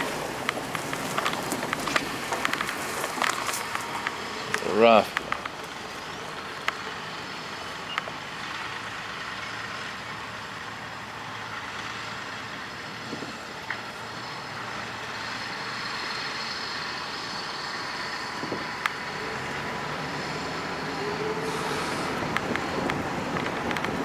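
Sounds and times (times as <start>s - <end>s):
faint clicks: 0.0s - 9.8s, 15.8s - 24.0s
truck engine running: 0.0s - 24.0s.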